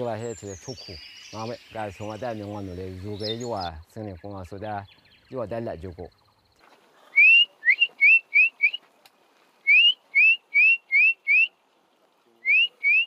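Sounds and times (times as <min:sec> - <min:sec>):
bird singing whistled notes: 0:00.0 - 0:06.5, 0:07.1 - 0:08.8, 0:09.6 - 0:11.6, 0:12.4 - 0:13.0.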